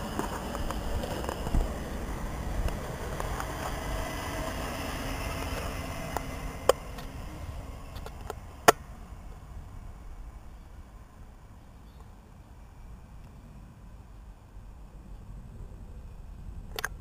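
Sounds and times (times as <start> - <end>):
train wheels rumbling on rails: 0.0 - 10.6.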